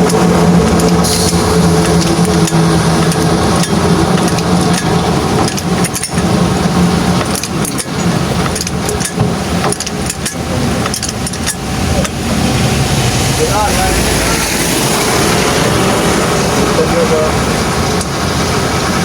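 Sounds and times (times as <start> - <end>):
metallic clinks and taps: 0.0 - 12.2
truck engine running: 0.0 - 19.0.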